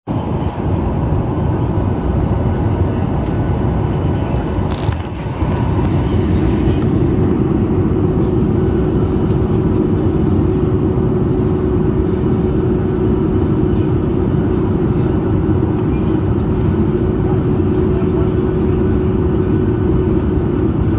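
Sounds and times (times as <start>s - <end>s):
aircraft cabin engine rush: 0.1s - 20.9s.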